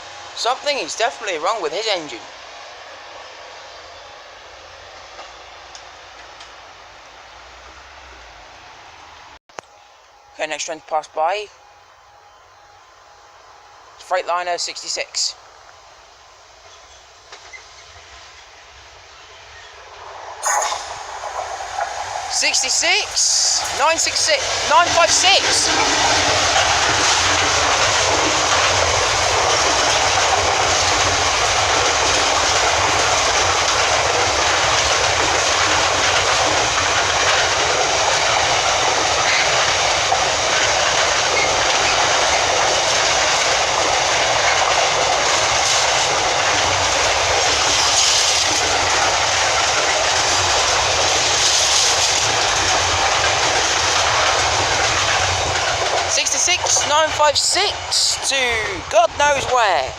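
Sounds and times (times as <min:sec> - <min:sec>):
freight train wheels rolling on rails: 0:15.5 - 0:59.9.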